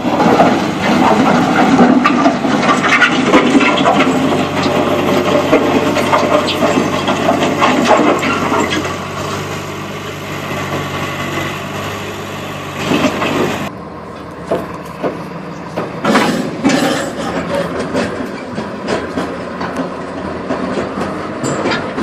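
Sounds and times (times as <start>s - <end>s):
heavy truck engine running: 0.0s - 22.0s
knocks and clanks: 0.1s - 9.0s, 14.5s - 22.0s.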